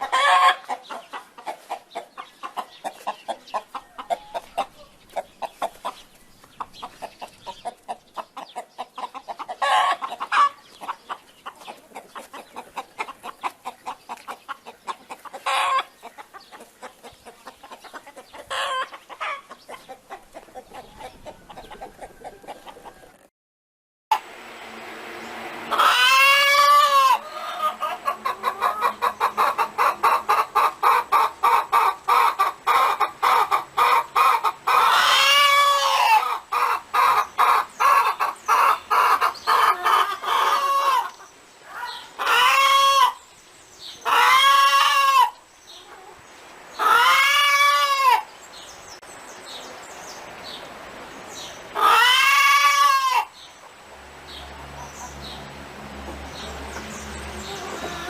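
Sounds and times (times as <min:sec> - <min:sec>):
hen clucking: 0:00.0 - 0:23.3, 0:25.7 - 0:43.2, 0:43.9 - 0:48.3, 0:51.4 - 0:55.4, 0:56.0 - 0:58.0.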